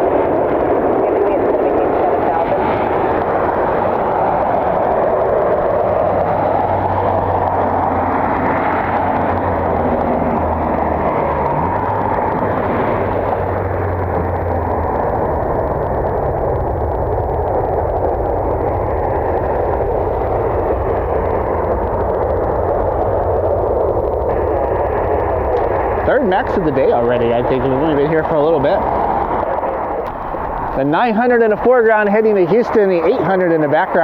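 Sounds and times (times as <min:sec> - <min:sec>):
jet engines roaring: 0:00.0 - 0:34.0
low hum: 0:00.0 - 0:34.0.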